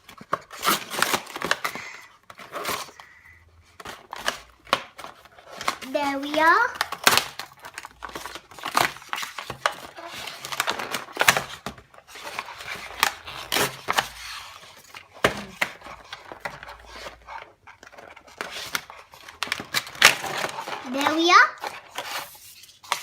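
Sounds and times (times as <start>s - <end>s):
paper and cardboard tearing: 0.1s - 3.1s, 4.0s - 23.0s.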